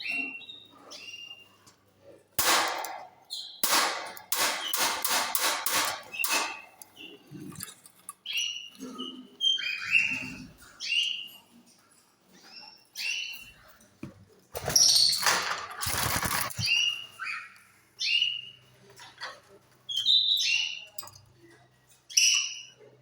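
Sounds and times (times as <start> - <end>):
loud rustling: 15.3 - 16.8.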